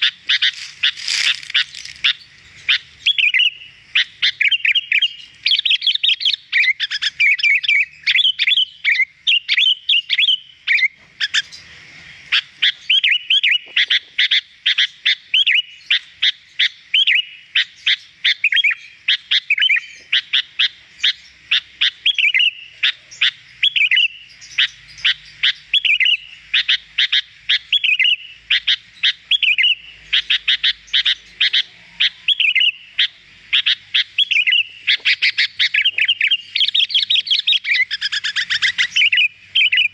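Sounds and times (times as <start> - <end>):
bird chirping and whistling: 0.0 - 11.6, 12.6 - 13.9, 21.8 - 39.9.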